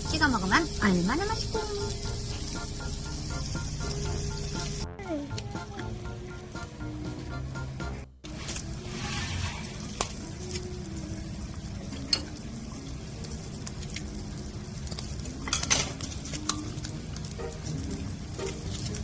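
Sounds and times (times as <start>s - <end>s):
food sizzling on a grill: 0.0s - 7.2s, 8.3s - 19.0s
utensils and dishes clinking: 11.8s - 12.5s, 15.0s - 19.0s.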